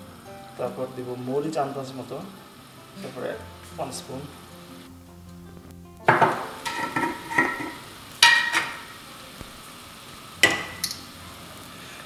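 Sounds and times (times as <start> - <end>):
faint sizzle: 0.0 - 12.0
spoon clinking against pot: 6.1 - 8.9, 10.4 - 11.1
spoon stirring paste in pot: 6.6 - 8.9.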